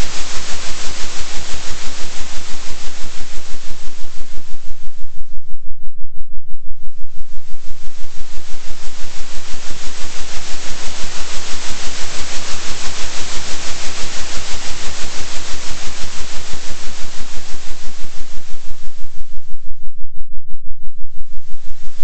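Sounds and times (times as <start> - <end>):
oscillating hiss noise: 0.0 - 5.5, 6.8 - 19.8, 21.1 - 22.0
deep hum: 18.7 - 22.0.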